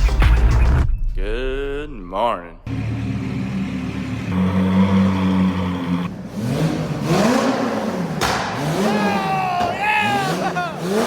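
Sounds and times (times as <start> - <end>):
car engine revving: 2.7 - 11.0.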